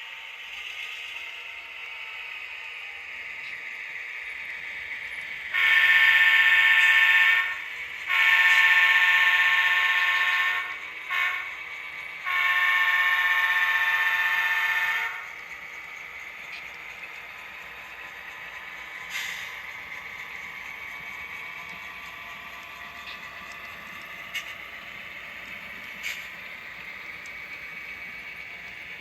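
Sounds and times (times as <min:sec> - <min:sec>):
model locomotive horn blasts: 0:05.5 - 0:15.3.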